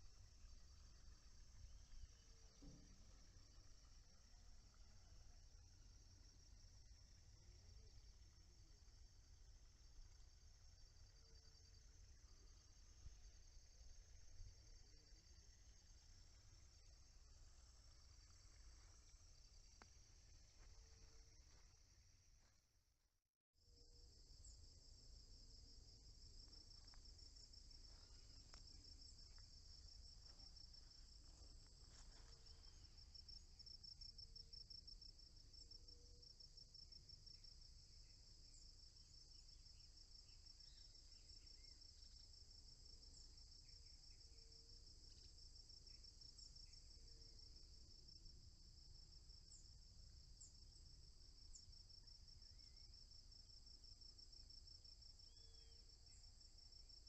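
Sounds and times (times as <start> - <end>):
crickets trilling: 23.7 - 57.0.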